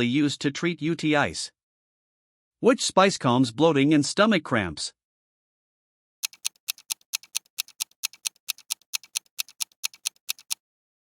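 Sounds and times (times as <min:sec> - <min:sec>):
clock ticking fast: 0:06.2 - 0:10.6.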